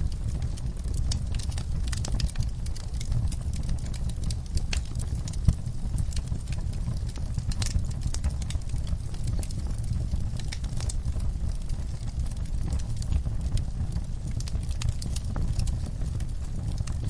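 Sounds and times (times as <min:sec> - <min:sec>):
fire low rumble: 0:00.0 - 0:17.0
wood fire crackling: 0:00.0 - 0:17.0.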